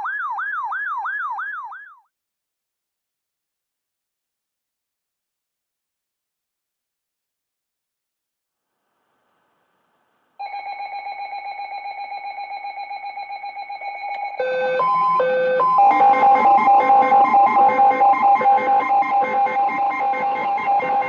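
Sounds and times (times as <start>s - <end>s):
alternating high and low beeps: 10.4s - 21.0s.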